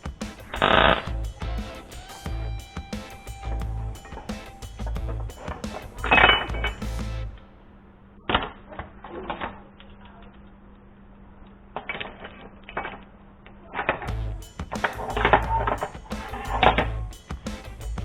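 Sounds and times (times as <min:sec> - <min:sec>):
background music: 0:00.0 - 0:07.6, 0:14.1 - 0:18.0
steady low hum: 0:00.0 - 0:08.3, 0:14.1 - 0:18.0.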